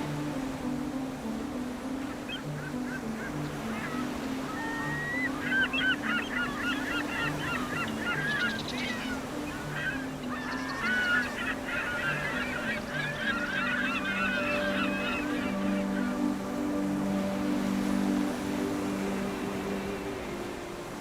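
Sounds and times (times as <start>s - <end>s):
soft ambient music: 0.0s - 21.0s
warbling high-pitched calls: 2.0s - 18.1s.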